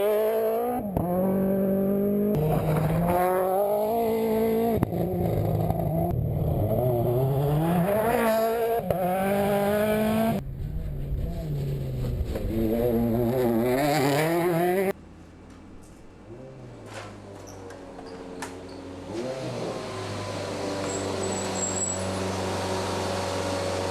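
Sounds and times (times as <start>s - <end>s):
rally car engine revving hard: 0.0s - 10.4s, 12.4s - 14.9s, 19.0s - 23.9s.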